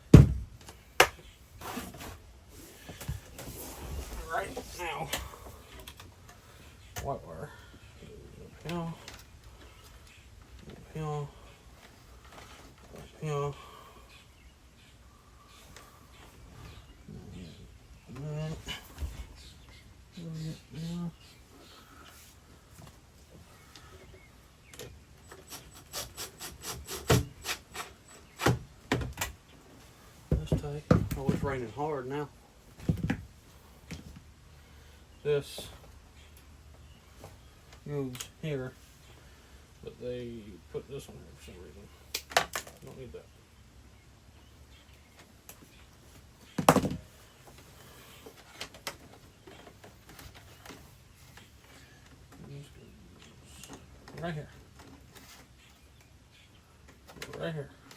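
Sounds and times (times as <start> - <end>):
screwdriver scraping strokes: 25.3 - 28.1.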